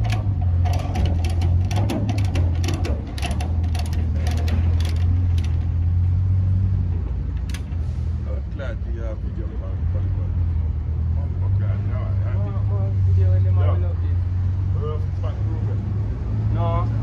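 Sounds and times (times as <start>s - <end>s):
clicks and rattles: 0.0s - 6.0s, 7.0s - 7.9s
truck diesel engine droning: 0.0s - 17.0s.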